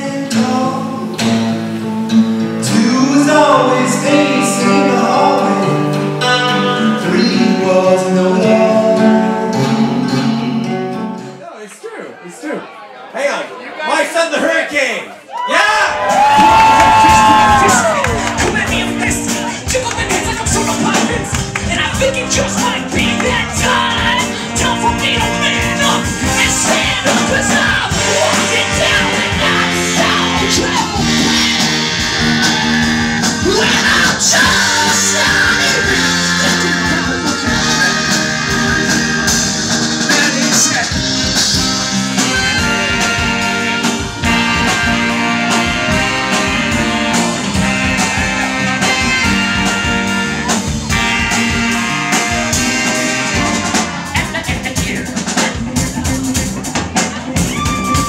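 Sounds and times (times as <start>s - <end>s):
live rock band with singing: 0.0s - 11.4s, 16.0s - 58.0s.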